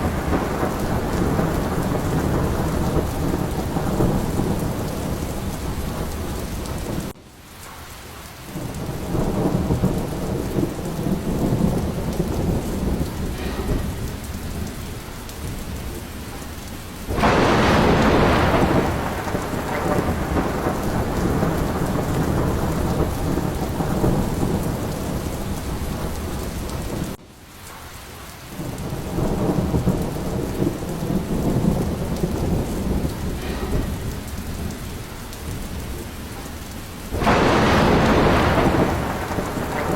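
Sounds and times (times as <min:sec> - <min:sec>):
rolling thunder: 0:00.0 - 0:07.2, 0:07.9 - 0:27.2, 0:28.6 - 0:39.9
sharp thunderclap: 0:00.0 - 0:07.2, 0:08.5 - 0:27.2, 0:28.6 - 0:39.9
heavy rain: 0:00.0 - 0:39.9.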